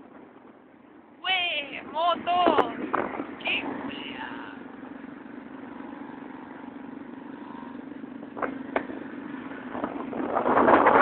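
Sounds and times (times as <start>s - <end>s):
motorcycle engines humming: 0.0s - 11.0s.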